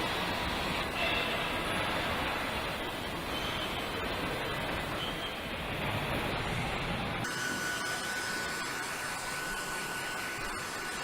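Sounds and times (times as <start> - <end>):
factory machinery hissing: 0.0 - 11.0.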